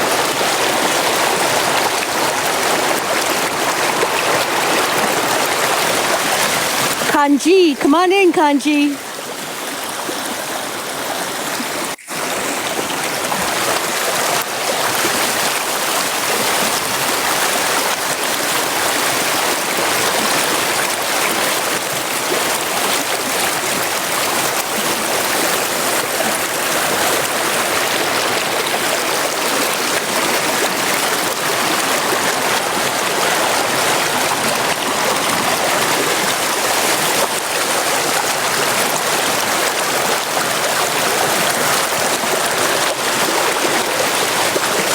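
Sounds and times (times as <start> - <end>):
water rushing over rocks: 0.0 - 7.1.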